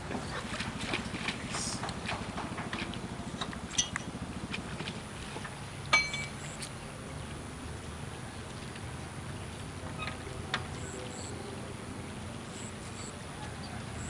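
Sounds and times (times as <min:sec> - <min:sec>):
low steady hum: 0:00.0 - 0:14.0
ringing metal clanks: 0:05.9 - 0:06.4.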